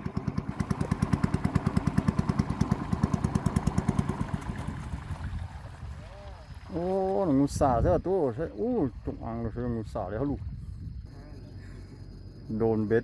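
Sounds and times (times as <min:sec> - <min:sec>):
small boat engine chugging: 0:00.0 - 0:10.0.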